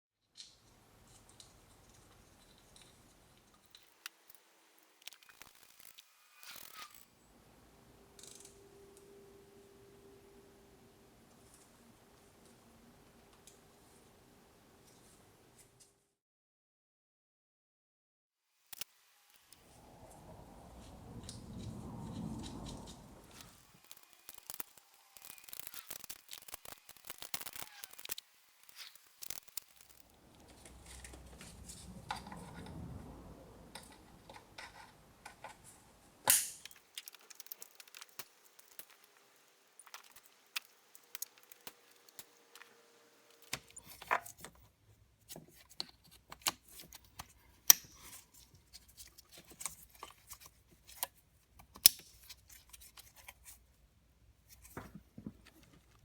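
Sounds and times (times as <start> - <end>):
hand tools clicking and scraping: 0.4 - 7.1, 20.8 - 32.8, 33.8 - 44.6.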